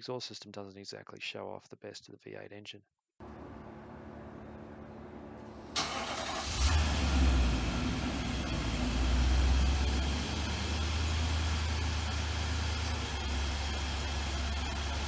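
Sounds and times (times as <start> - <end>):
car engine rumbling and idling: 3.2 - 15.0.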